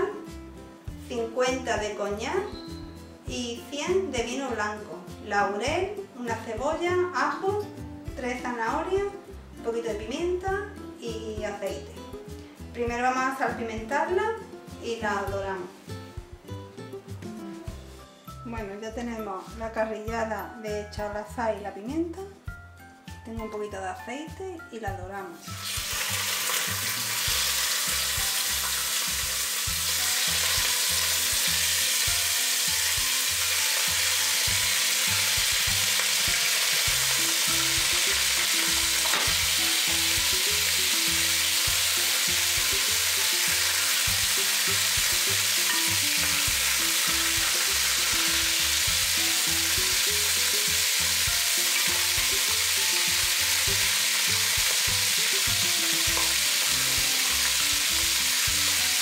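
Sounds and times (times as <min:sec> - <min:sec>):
meat sizzling in hot oil: 0:25.4 - 0:59.0.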